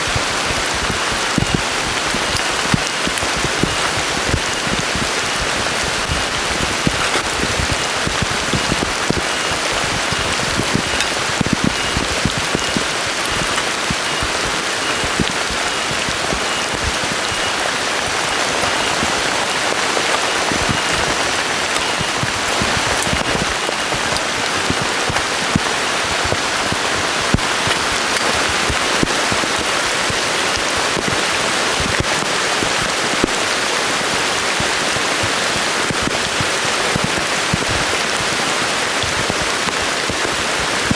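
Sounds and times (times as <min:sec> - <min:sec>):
heavy rain falling: 0:00.0 - 0:40.9
raindrops ticking on surfaces: 0:00.0 - 0:40.9.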